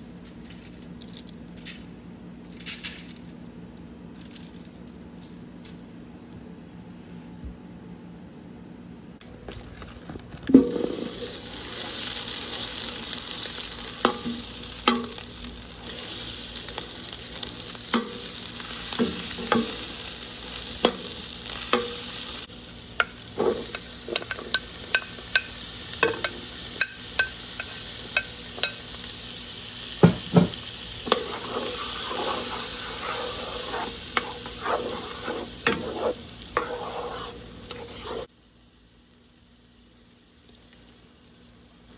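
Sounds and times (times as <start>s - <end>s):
food sizzling in a pan: 10.5s - 41.9s
utensil scraping a pan: 30.0s - 38.3s.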